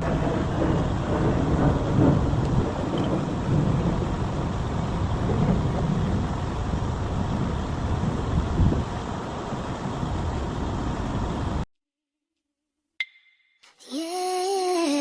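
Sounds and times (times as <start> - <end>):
heavy truck engine rumble: 0.0 - 11.6.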